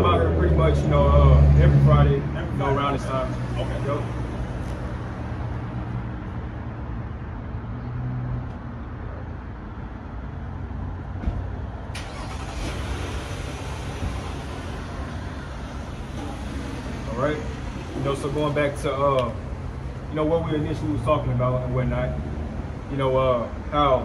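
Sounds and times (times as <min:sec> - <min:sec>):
road noise: 0:00.0 - 0:24.0
vehicle engine running: 0:12.0 - 0:22.0.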